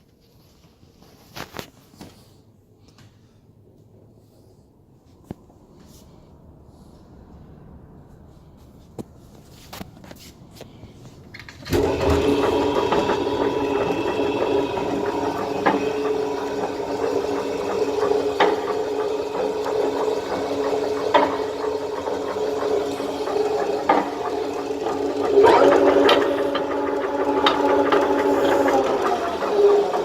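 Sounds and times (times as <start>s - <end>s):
meat grinder humming: 11.7s - 30.0s.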